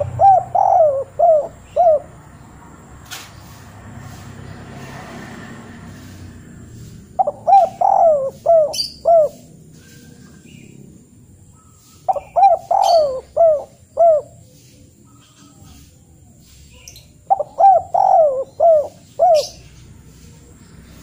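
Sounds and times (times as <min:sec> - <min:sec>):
bird calling: 0:00.0 - 0:02.5, 0:06.0 - 0:10.8, 0:11.4 - 0:20.5.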